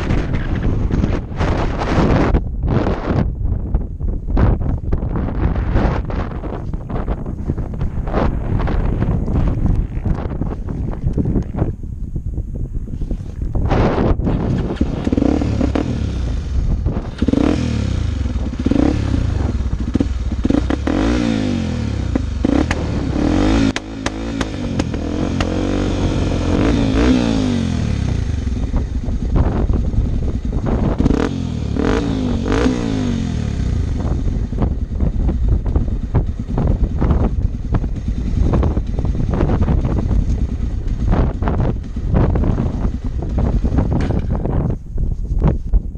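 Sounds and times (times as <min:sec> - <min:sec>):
motorcycle engine revving: 0:00.0 - 0:12.0, 0:13.2 - 0:44.9
motorcycle clattering knocks: 0:43.9 - 0:44.7.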